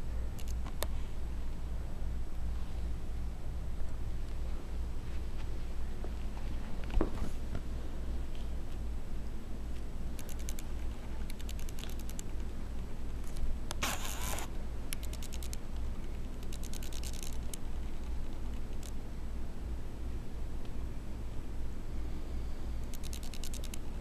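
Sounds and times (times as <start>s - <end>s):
steady low hum: 0.0s - 24.0s
light scratching and clicking: 9.8s - 19.0s, 22.9s - 24.0s.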